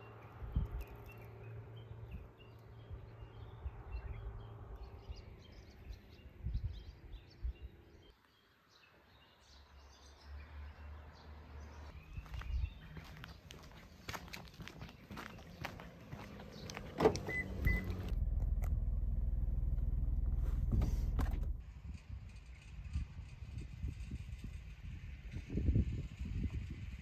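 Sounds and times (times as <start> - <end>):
small birds chirping: 0.0 - 18.1
low outdoor rumble: 12.2 - 27.0.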